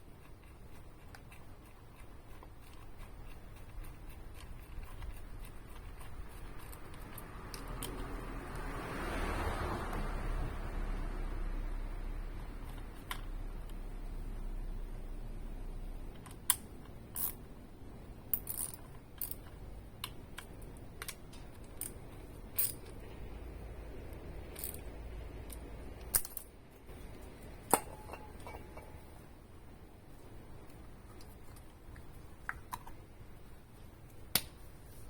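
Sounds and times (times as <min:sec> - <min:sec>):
faint low hum: 0:00.0 - 0:35.0
small tools clicking and tapping: 0:00.1 - 0:08.7, 0:18.3 - 0:23.0.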